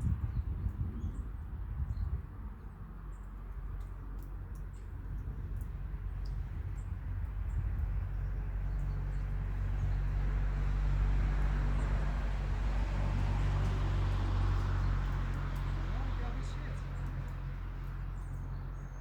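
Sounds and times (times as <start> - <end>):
motor vehicle passing: 8.8 - 19.0.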